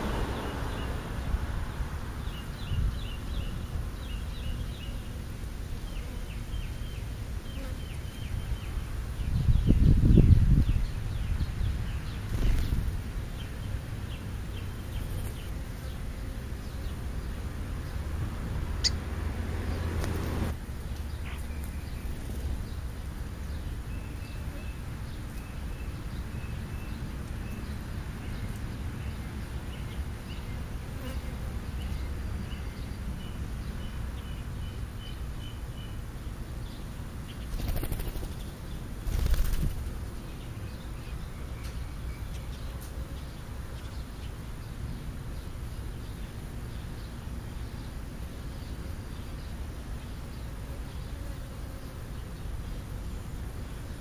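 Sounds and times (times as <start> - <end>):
wing flutters: 12.2 - 13.0, 15.0 - 15.6, 37.4 - 40.2
small bird chirps: 18.8 - 19.0.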